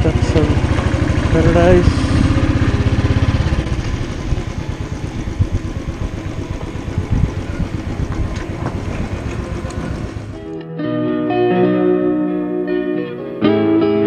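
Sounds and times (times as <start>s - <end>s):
motorcycle engine low thudding: 0.0s - 10.4s.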